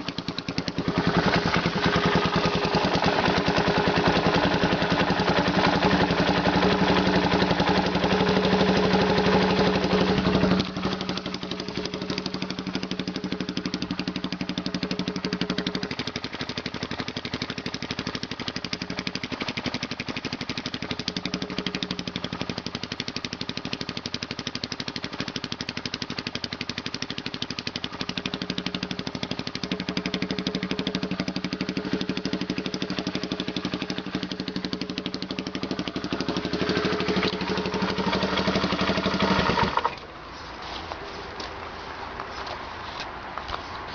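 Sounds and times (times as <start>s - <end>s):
motorcycle engine running: 0.0s - 41.7s.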